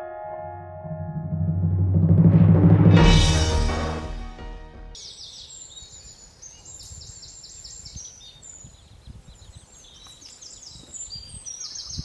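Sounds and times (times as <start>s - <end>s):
birds chirping: 5.0s - 12.0s.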